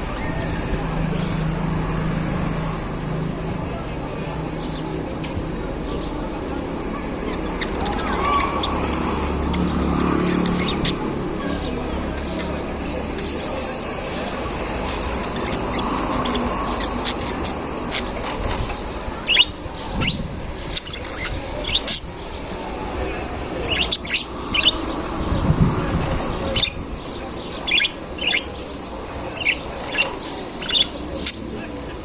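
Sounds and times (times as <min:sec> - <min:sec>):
budgerigars chirping: 0:07.2 - 0:32.0.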